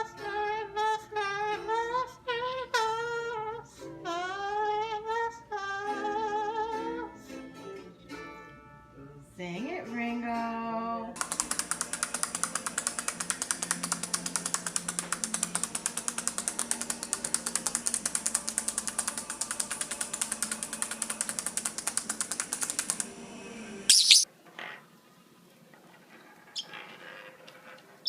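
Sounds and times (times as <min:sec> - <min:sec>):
parrot clicking: 0:11.2 - 0:23.1
parrot squawk: 0:23.9 - 0:24.2.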